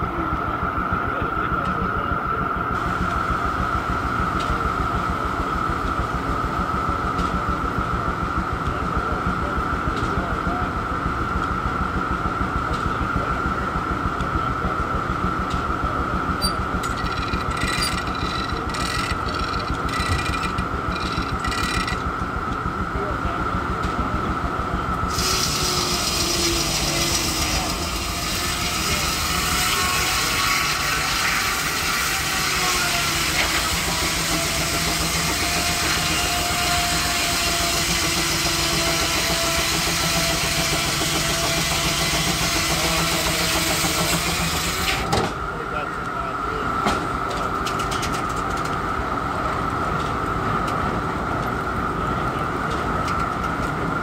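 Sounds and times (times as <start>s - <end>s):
saw cutting through log: 25.1s - 45.1s.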